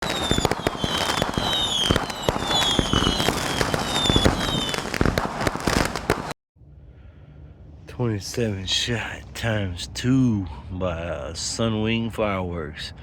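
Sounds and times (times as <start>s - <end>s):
firework crackling: 0.0s - 6.4s
firework reports: 0.0s - 6.4s
firework whistles: 0.0s - 6.4s.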